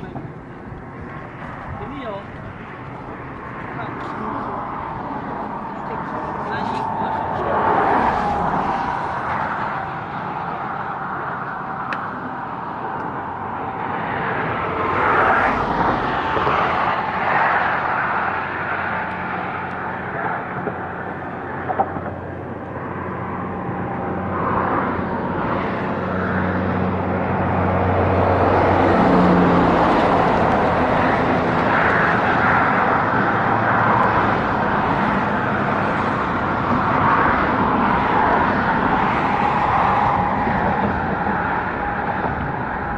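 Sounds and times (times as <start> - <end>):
heavy vehicle engine drone: 0.0 - 42.9
highway traffic rushing past: 0.0 - 42.9
wind buffeting microphone: 0.0 - 42.9.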